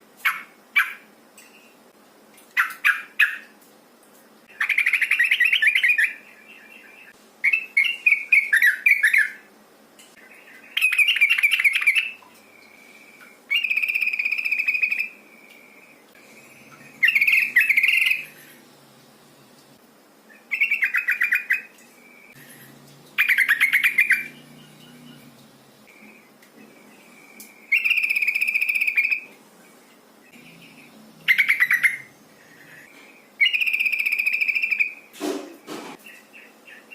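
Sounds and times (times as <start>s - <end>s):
bird chattering calls: 30.4s - 34.9s.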